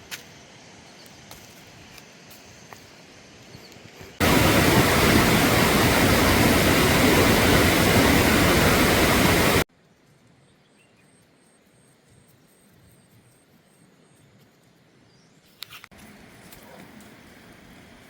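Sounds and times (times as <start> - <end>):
rushing water: 4.2 - 9.7.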